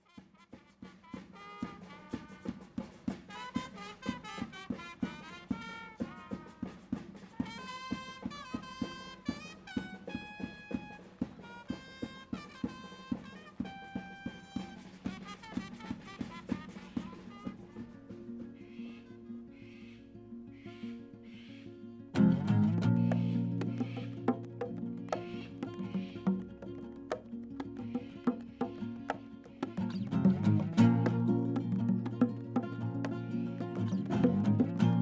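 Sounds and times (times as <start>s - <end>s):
steady drum beat: 23.0s - 35.0s.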